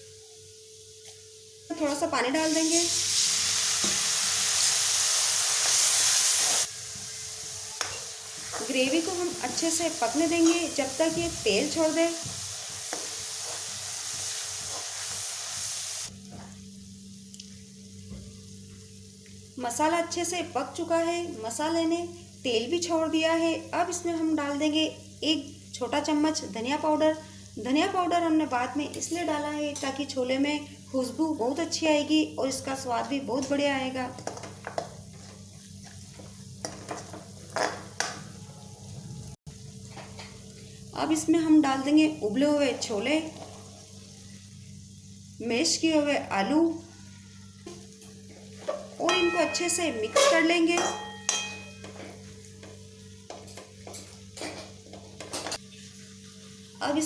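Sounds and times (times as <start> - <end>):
gravy sizzling in a pan: 0.2 - 57.0
spoon scraping a pan: 48.6 - 52.3.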